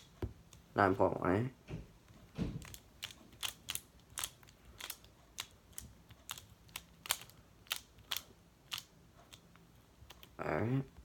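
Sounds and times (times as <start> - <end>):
plastic puzzle clicks: 2.6 - 10.4.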